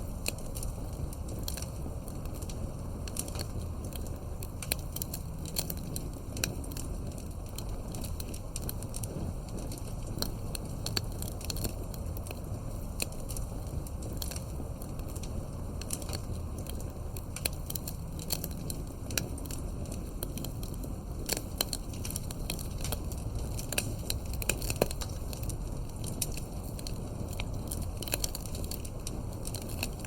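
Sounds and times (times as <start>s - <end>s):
fire pops and snaps: 0.0s - 30.0s
low rumble of flames: 0.0s - 30.0s.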